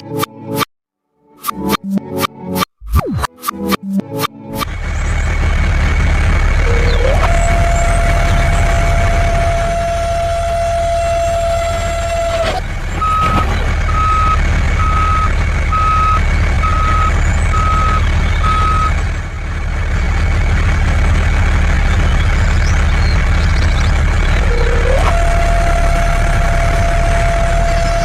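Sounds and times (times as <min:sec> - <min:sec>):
low engine rumble: 0:04.6 - 0:28.0
reversing alarm beeping: 0:06.6 - 0:19.0, 0:24.3 - 0:28.0.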